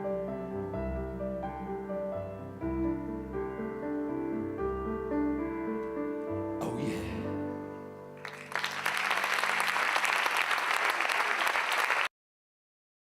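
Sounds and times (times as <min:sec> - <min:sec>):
audience applauding: 0:08.2 - 0:12.1.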